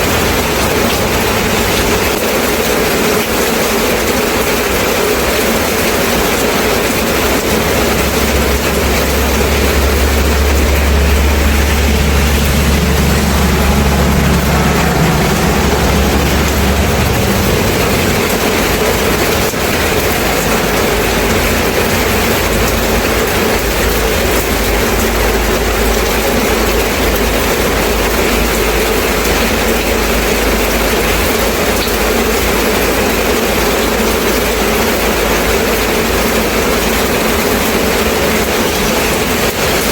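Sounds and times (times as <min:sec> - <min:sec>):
heavy rain hissing: 0:00.0 - 0:39.9
low engine-like rumble: 0:00.0 - 0:39.9.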